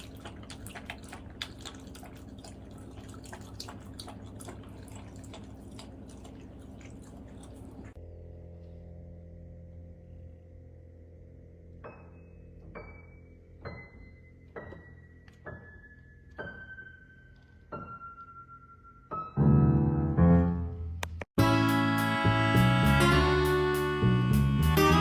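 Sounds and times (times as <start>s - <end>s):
piano music: 11.6s - 25.0s.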